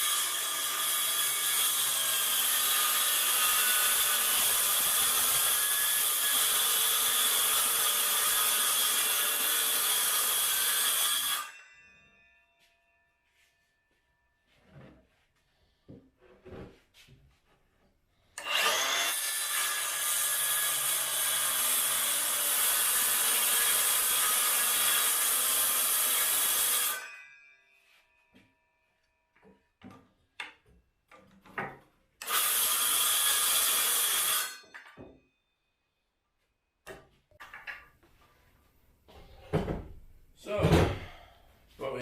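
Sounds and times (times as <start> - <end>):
power saw cutting wood: 0.0 - 11.6, 18.4 - 27.2, 32.2 - 34.8.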